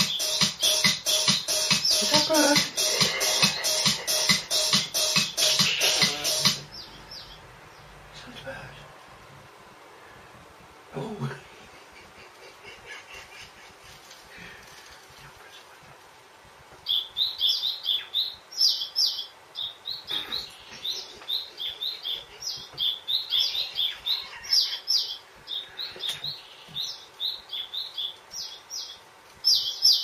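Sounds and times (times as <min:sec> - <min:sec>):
small bird chirping: 0:00.0 - 0:04.4, 0:05.1 - 0:08.0, 0:16.8 - 0:30.0.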